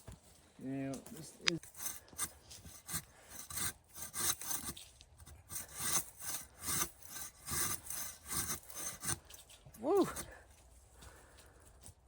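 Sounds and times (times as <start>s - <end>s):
hand saw cutting through wood: 1.6s - 10.4s.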